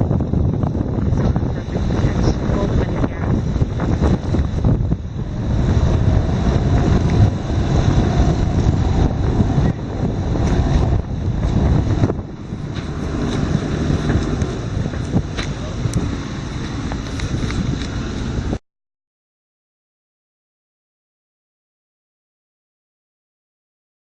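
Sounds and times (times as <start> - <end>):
wind buffeting microphone: 0.0 - 18.6.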